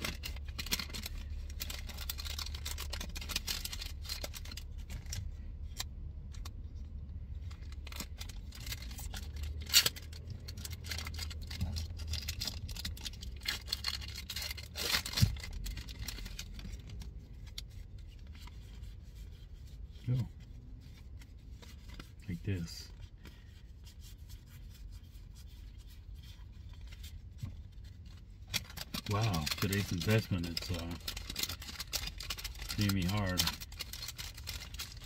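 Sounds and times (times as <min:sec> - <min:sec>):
foil wrappers crinkling: 0:00.0 - 0:05.8, 0:07.5 - 0:18.8, 0:25.7 - 0:35.0
cards rustling and sliding: 0:00.0 - 0:35.0.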